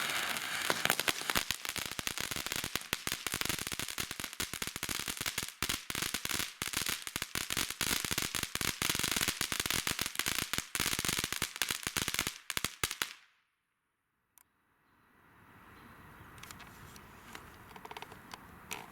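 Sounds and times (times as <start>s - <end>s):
firework crackling pops and snaps: 0.0s - 13.3s.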